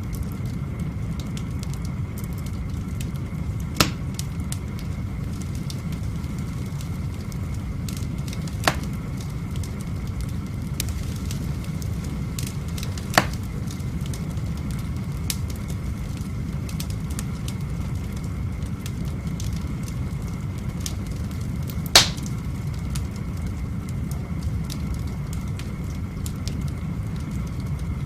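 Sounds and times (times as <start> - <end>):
wood fire crackling: 0.0 - 28.0
sharp pops of fire: 1.2 - 17.3, 20.6 - 26.6.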